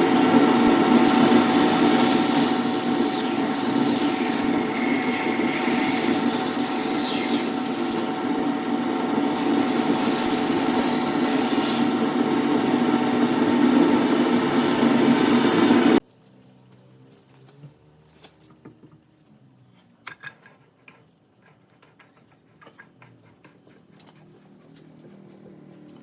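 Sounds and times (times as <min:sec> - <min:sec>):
power tool sanding wood: 0:00.0 - 0:16.0.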